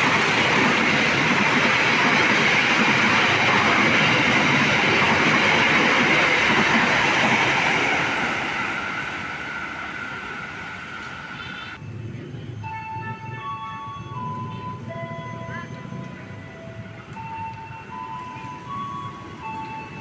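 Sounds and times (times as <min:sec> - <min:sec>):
train wheels rushing on rails: 0:00.0 - 0:11.9.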